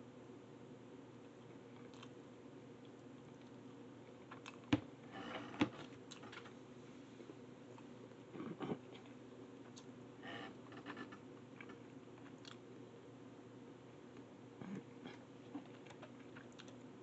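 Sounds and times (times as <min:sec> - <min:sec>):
chewing noodles: 0:11.6 - 0:12.6, 0:15.1 - 0:16.8
lip smacks: 0:12.3 - 0:12.6.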